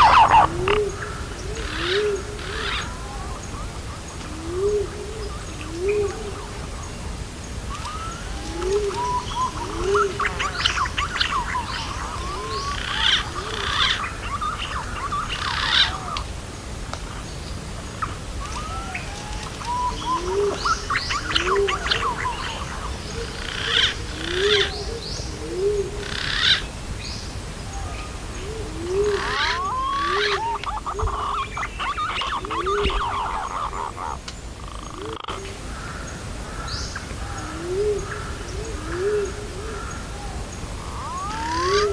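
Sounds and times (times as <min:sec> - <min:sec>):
pigeon call notes: 0:00.0 - 0:03.2, 0:28.5 - 0:35.5, 0:40.6 - 0:41.9
chirping and whistled birdsong: 0:00.0 - 0:16.3, 0:17.1 - 0:41.9.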